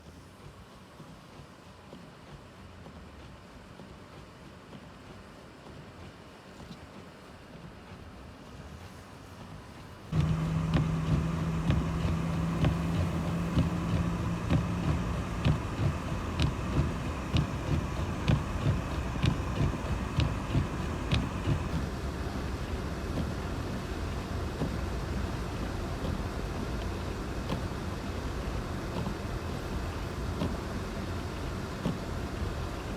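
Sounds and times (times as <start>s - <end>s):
road and engine noise: 10.0s - 32.9s
low hum: 10.1s - 23.9s
regular knocking: 10.2s - 21.8s.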